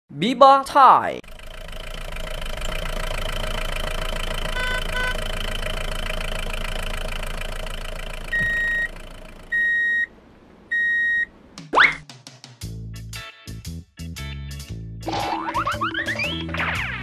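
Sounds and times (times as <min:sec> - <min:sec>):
vehicle engine idling: 0:01.2 - 0:11.6
short high electronic beeps: 0:04.6 - 0:05.2.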